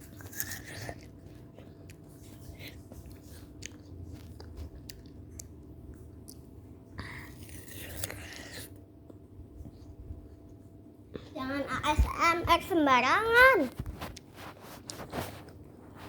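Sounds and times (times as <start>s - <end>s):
chewing and crunching fruit: 0.0s - 10.5s.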